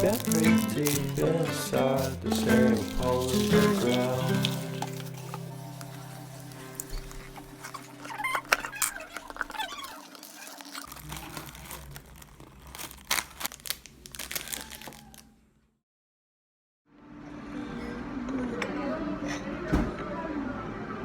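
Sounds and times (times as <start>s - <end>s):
crinkling handling sounds: 0.0s - 15.4s.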